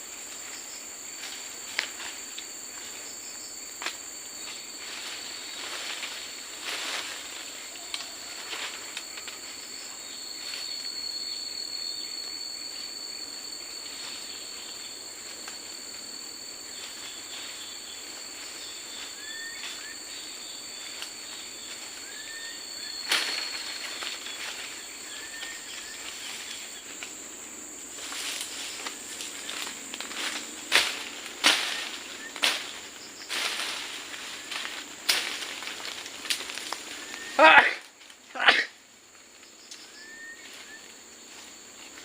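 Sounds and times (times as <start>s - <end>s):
insects trilling: 0.0s - 42.0s.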